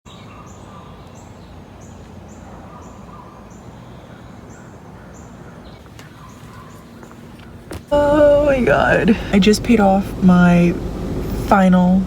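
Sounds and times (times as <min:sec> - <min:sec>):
bird chirping: 0:00.1 - 0:08.1
low outdoor rumble: 0:00.6 - 0:12.0.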